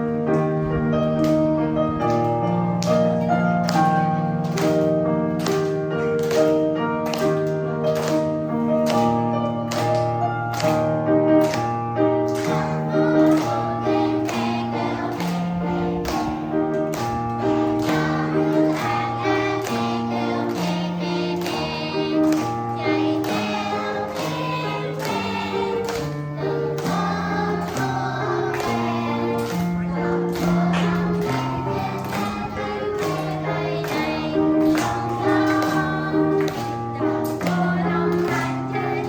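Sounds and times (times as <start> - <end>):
group singing in unison: 12.4 - 39.0.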